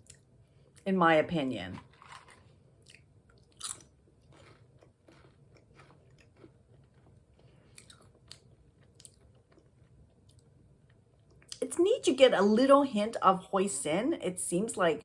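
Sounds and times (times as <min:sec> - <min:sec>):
chewing crunchy chips: 0:01.8 - 0:10.5.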